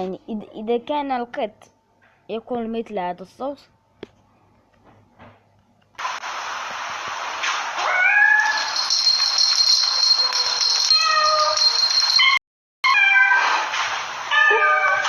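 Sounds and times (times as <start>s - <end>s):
cat meowing loudly: 7.8s - 8.6s, 12.8s - 13.7s, 14.3s - 15.0s.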